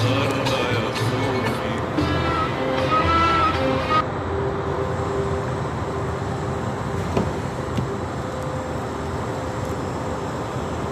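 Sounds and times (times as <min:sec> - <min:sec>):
song with singing: 0:00.0 - 0:04.0
vehicle noise: 0:00.0 - 0:10.9.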